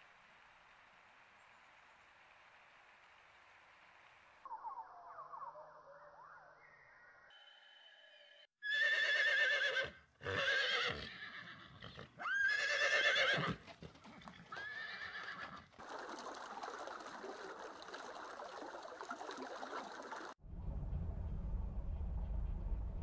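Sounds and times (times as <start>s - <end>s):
horses whinnying: 8.6s - 13.6s, 14.4s - 15.7s.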